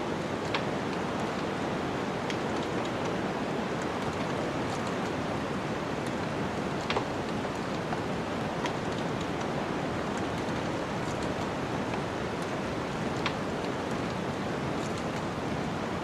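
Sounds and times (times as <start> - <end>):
wood fire crackling: 3.7 - 15.4.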